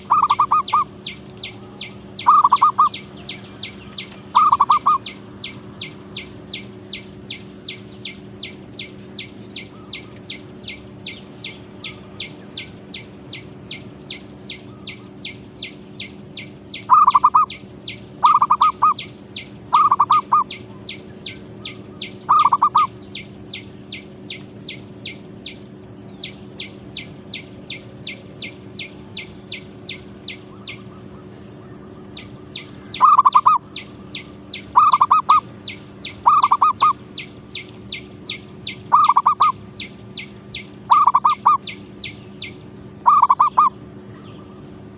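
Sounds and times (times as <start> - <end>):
dove cooing: 0.0 - 5.2, 16.9 - 17.6, 18.2 - 19.1, 19.7 - 20.9, 21.6 - 23.0, 28.0 - 37.0, 38.9 - 39.6, 40.9 - 41.7, 43.0 - 43.8
faint low hum: 0.0 - 44.9.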